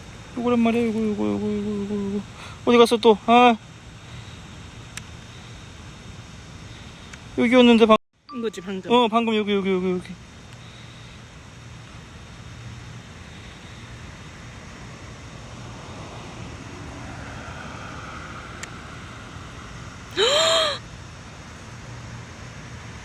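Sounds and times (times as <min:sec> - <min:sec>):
steady low hum: 0:00.0 - 0:23.0
person exclaiming: 0:20.2 - 0:20.8.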